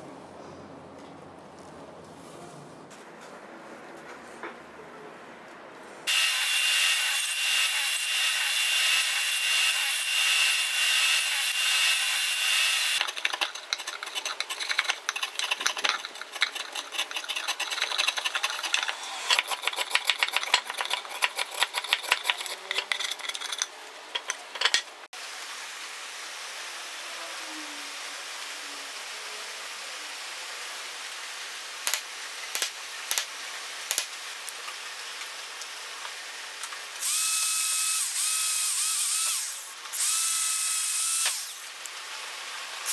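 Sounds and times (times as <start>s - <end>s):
power tool whining on wood: 6.1s - 13.0s, 37.0s - 41.8s
tool rasping on wood: 12.9s - 23.6s.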